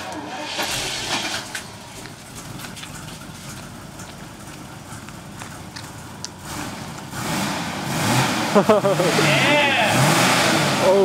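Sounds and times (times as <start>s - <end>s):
car engine idling: 0.0s - 11.0s
light ticks: 2.0s - 7.1s.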